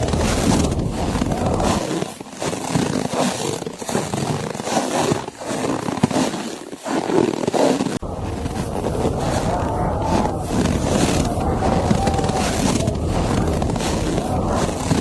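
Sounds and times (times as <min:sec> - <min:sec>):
low wind rumble: 0:00.0 - 0:01.8, 0:08.0 - 0:15.0.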